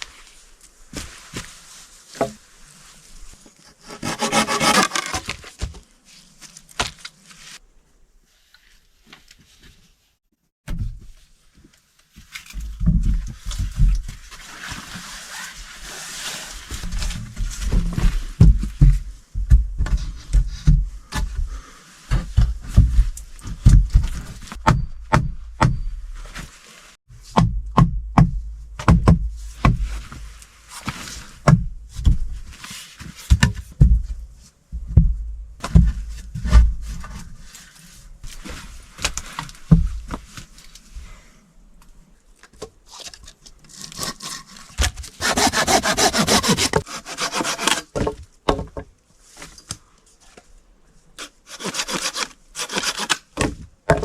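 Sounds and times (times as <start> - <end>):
rustling: 0.0 - 10.3, 11.0 - 24.6, 26.0 - 27.0
dull knocks and heavy thumps: 12.6 - 14.2, 16.8 - 26.2, 27.2 - 30.4, 31.4 - 32.5, 33.3 - 37.2.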